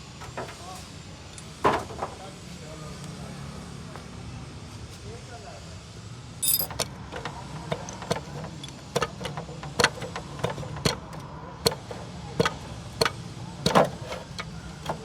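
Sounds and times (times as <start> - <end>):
metallic clicks of tools: 6.4 - 6.9.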